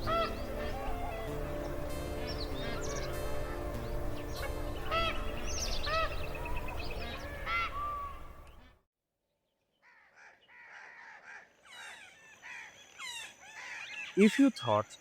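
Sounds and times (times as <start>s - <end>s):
soft background music: 0.0s - 8.4s
birds chirping and calling: 0.0s - 8.7s, 9.8s - 15.0s.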